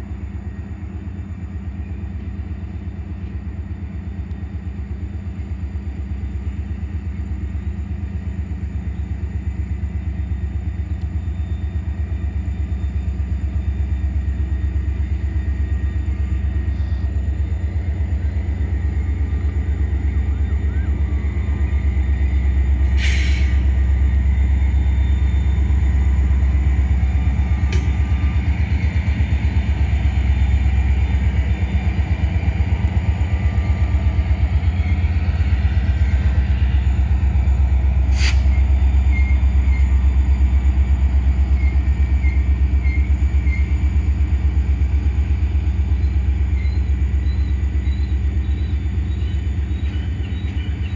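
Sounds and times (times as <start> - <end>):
freight train rumbling: 0.0 - 50.9
brief hiss: 22.9 - 23.7, 38.1 - 38.6.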